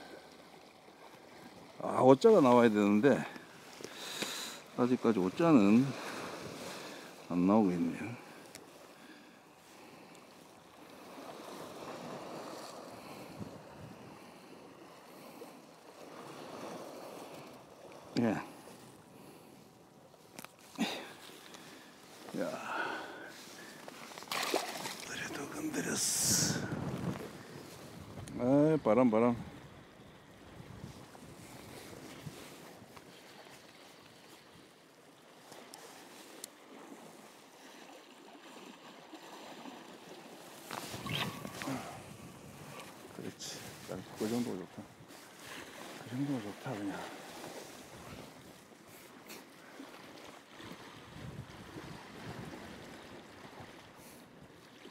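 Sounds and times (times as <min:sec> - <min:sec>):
wind: 0:00.0 - 0:54.9
faint ticks: 0:03.3 - 0:04.4, 0:10.1 - 0:10.3.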